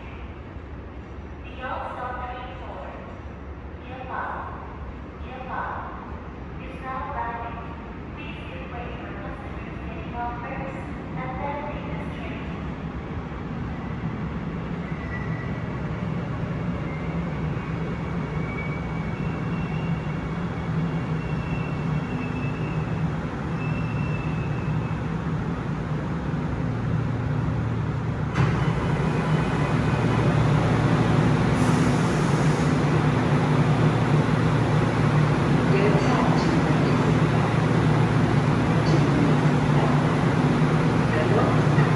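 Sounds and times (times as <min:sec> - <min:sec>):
train running rumble: 0:20.2 - 0:41.9
electric train motor whine: 0:28.4 - 0:41.9.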